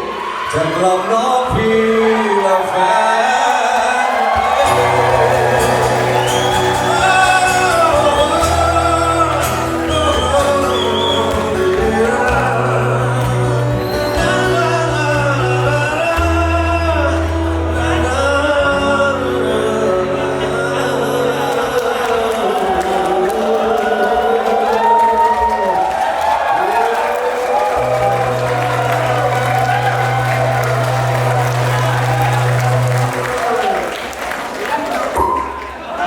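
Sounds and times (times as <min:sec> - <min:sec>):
audience shouting: 0:00.0 - 0:14.4, 0:21.2 - 0:36.0
person singing live music: 0:00.0 - 0:24.9, 0:27.3 - 0:33.6
steady bass line: 0:04.4 - 0:21.4, 0:27.8 - 0:33.4.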